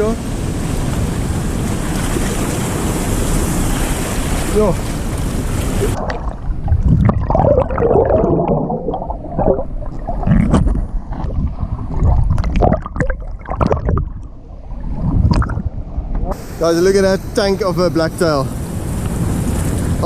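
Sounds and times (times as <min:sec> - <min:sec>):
surf hiss: 0:00.0 - 0:06.1, 0:16.3 - 0:20.0
water gurgling and sloshing: 0:00.0 - 0:16.5.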